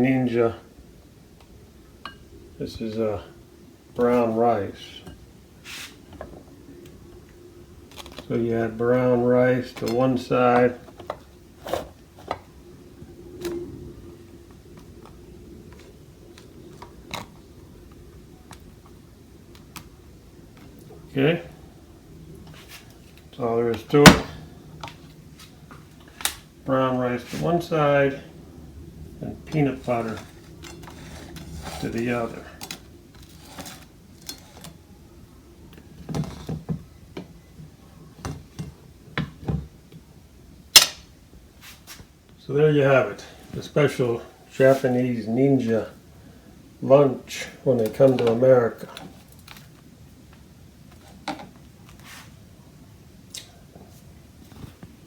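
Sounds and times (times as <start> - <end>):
faint steady hum: 0.0 - 55.0
utensil scraping plate and toast: 29.7 - 34.6.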